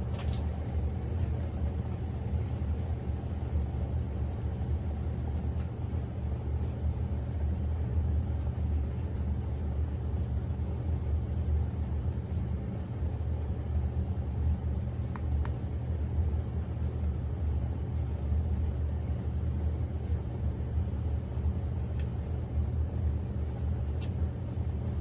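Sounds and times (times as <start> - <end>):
dishwasher running: 0.0 - 3.2.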